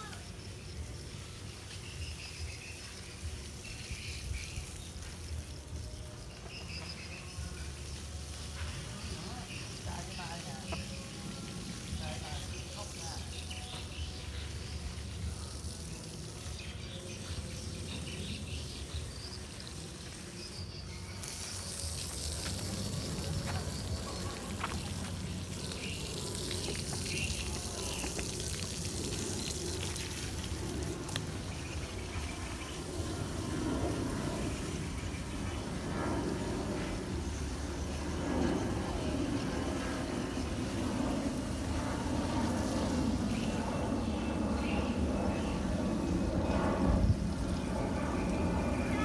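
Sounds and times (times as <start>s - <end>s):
water pouring and trickling: 0.2s - 35.9s.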